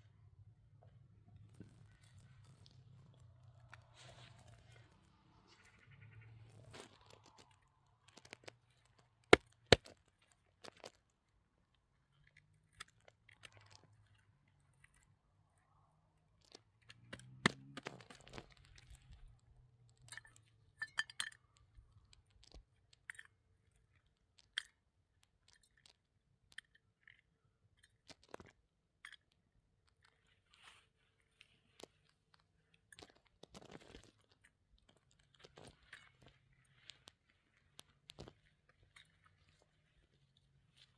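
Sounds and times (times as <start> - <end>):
small hard objects clinking: 20.0 - 21.7.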